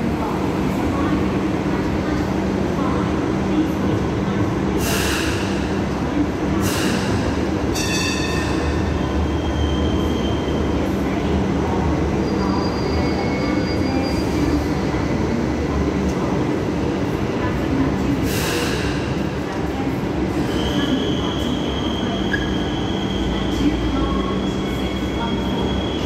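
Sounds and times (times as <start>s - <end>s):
train wheels squealing: 7.8s - 10.7s, 12.2s - 14.8s, 20.4s - 26.0s.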